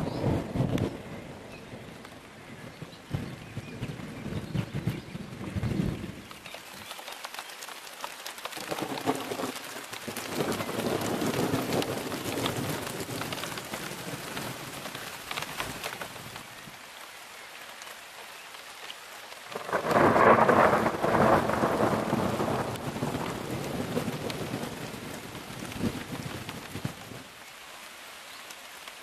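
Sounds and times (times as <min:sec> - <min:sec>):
thunder clap rumbling: 0:00.0 - 0:06.3, 0:08.6 - 0:14.8, 0:19.5 - 0:27.2
rain falling: 0:00.0 - 0:29.0.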